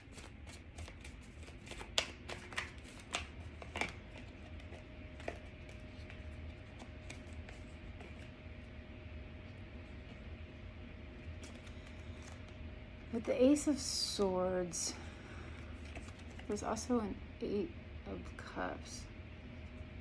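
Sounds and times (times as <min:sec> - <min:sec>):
cards shuffling: 0:00.0 - 0:08.3, 0:11.3 - 0:12.6, 0:15.6 - 0:16.6.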